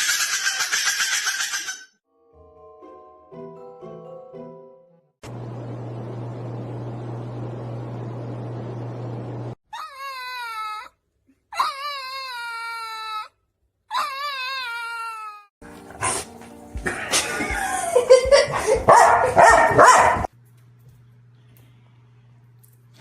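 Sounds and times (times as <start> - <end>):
music: 2.0 - 5.2, 15.6 - 18.6.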